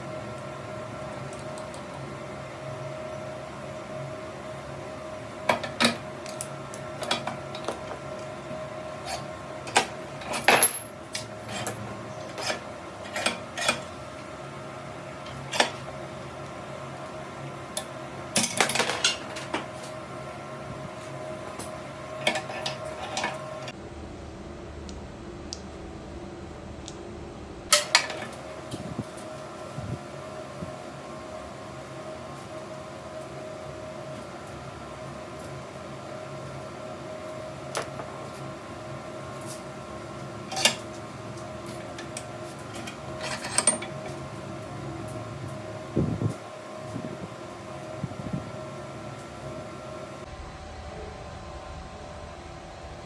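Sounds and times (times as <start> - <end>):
machine humming: 0.0 - 53.0
metal parts clanking: 9.1 - 13.9, 42.8 - 44.2.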